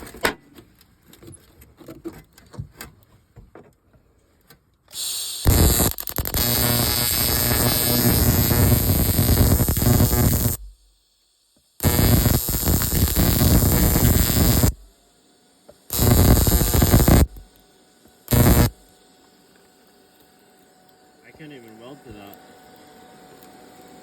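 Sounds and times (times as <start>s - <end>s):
welding arc crackling and buzzing: 5.0s - 10.8s, 11.8s - 14.9s, 15.9s - 17.6s, 18.3s - 18.8s.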